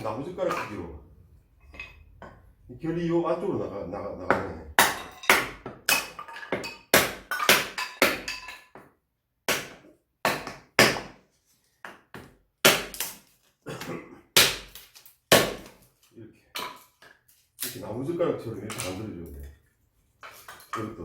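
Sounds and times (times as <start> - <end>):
axe splitting firewood: 6.9 - 8.4, 9.5 - 11.2, 11.8 - 13.3, 14.4 - 15.8.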